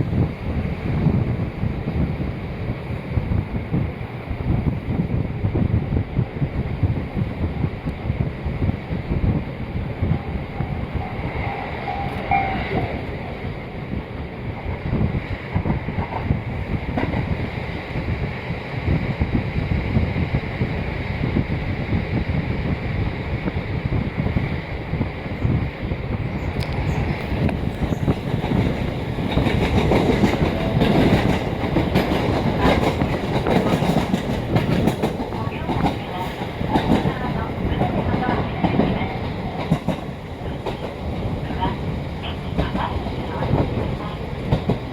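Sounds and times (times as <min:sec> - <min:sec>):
railcar wheels and engine rumbling: 0:00.0 - 0:44.9
faint squeal: 0:10.3 - 0:13.0
wheels clicking over rail joints: 0:26.5 - 0:44.9.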